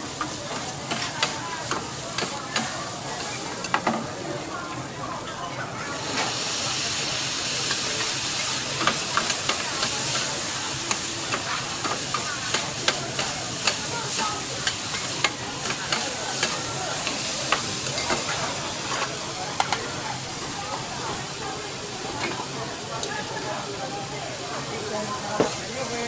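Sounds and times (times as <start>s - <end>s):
food sizzling in hot oil: 0.0s - 5.0s, 5.7s - 26.0s.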